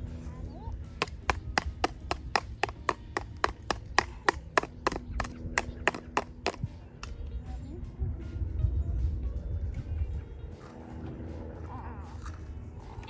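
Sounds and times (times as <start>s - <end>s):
sharp taps or knocks: 1.0s - 7.2s.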